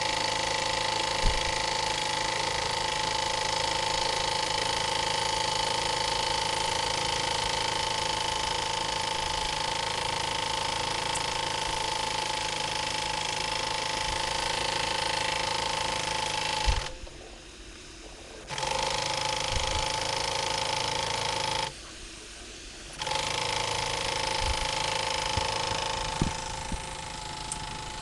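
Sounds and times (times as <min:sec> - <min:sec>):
steam engine hissing: 0:00.0 - 0:28.0.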